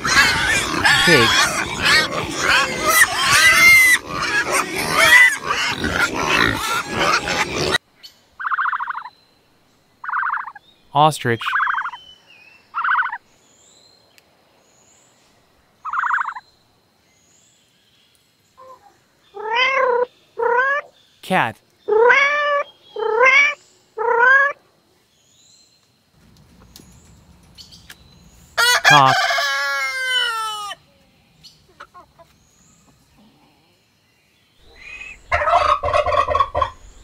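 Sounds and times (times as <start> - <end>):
ostrich calling: 0.0 - 7.8, 8.4 - 9.1, 10.0 - 10.6, 12.8 - 13.2, 34.6 - 37.0
pig squealing and grunting: 0.0 - 7.8.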